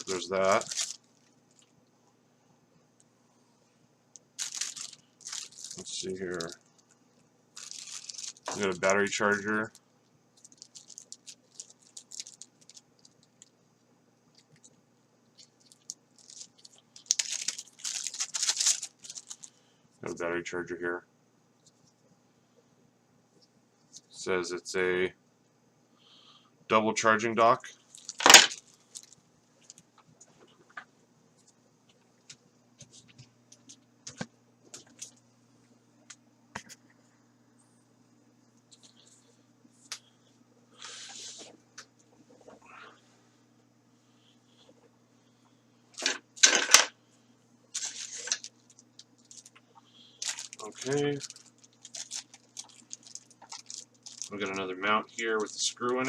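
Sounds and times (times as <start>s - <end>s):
plastic packaging crinkling: 0.0s - 1.8s, 4.2s - 13.6s, 14.3s - 19.6s, 27.8s - 29.9s, 32.8s - 35.2s, 46.0s - 46.9s, 47.7s - 56.0s
faint low hum: 0.0s - 56.0s.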